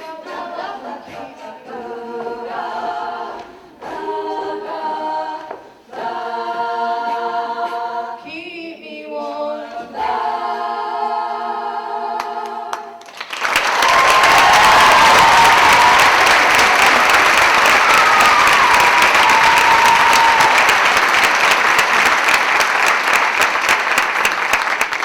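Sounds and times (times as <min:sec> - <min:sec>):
vocal group singing a chord: 0:00.0 - 0:13.1, 0:13.8 - 0:22.4
audience applause: 0:13.0 - 0:25.0
whistling: 0:13.6 - 0:23.2.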